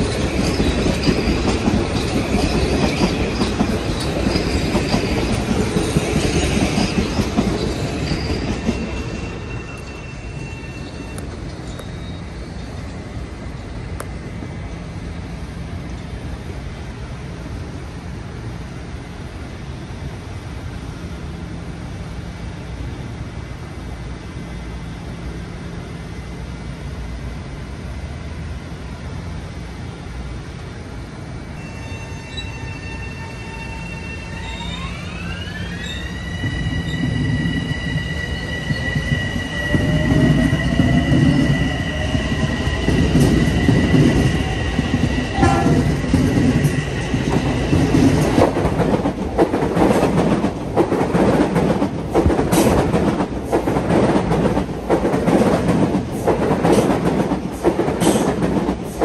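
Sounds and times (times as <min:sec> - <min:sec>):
train passing: 0:00.0 - 0:59.0
high whining tone: 0:31.6 - 0:47.9.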